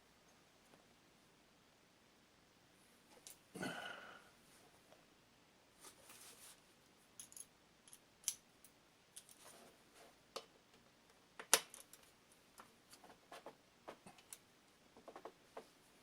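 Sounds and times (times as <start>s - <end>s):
metal tools clinking: 7.2s - 8.0s.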